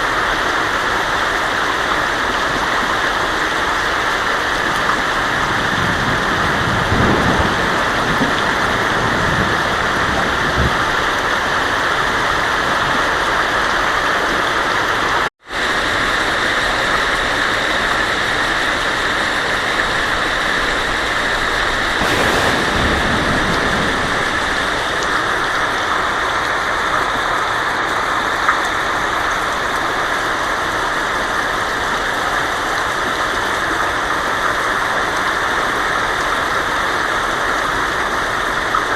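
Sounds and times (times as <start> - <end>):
heavy rain on a tin roof: 0.0 - 38.9
low thunder rumbles: 21.2 - 26.3.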